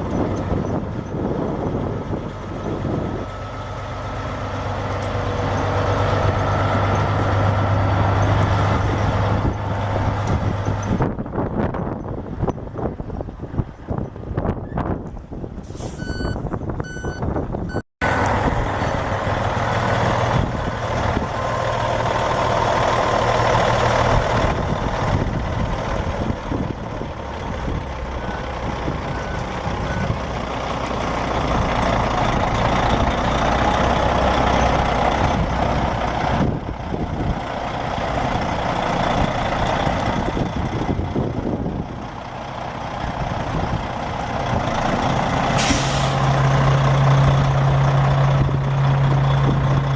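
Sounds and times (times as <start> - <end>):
diesel truck engine under load: 0.0 - 49.9
truck reversing beeps: 2.6 - 9.6, 15.8 - 20.2, 27.2 - 36.5.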